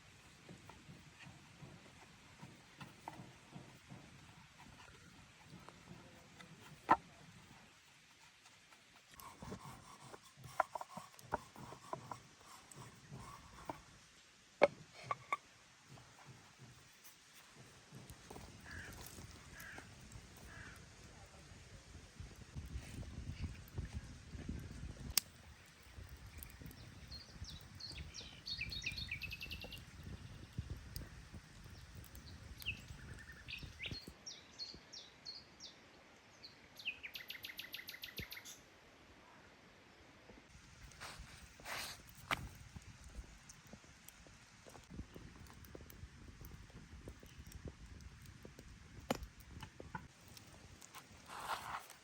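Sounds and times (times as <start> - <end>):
songbird singing and trilling: 26.3 - 30.5, 32.2 - 35.8, 36.8 - 38.6
hands rubbing and scraping food: 50.0 - 52.0.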